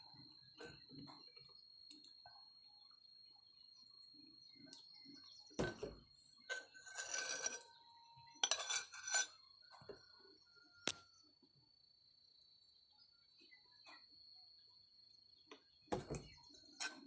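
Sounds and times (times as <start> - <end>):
dishes and utensils clattering: 6.5 - 7.7, 8.4 - 9.4.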